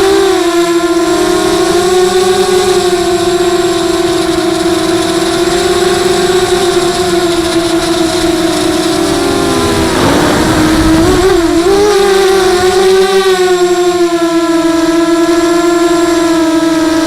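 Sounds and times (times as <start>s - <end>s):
quadcopter motors buzzing: 0.0s - 17.0s.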